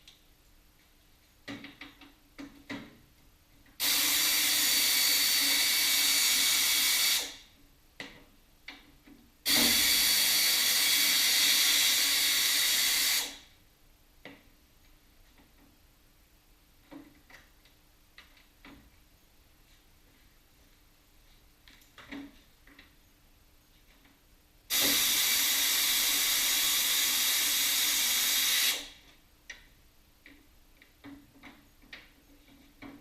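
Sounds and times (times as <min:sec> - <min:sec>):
pressurised gas hissing: 0:03.8 - 0:07.4, 0:09.5 - 0:13.5, 0:24.7 - 0:29.0.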